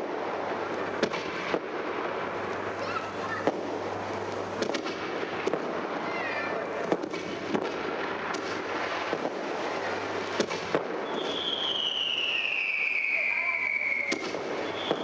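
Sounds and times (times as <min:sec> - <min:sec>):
fireworks crackling and banging: 0:00.0 - 0:15.0
whistling firework: 0:04.6 - 0:15.0.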